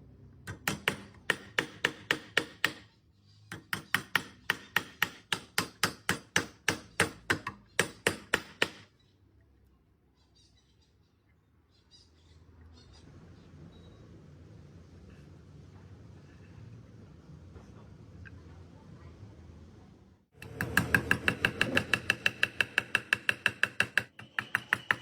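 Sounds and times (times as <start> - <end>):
rapid hammer blows on rivets: 20.4 - 25.0.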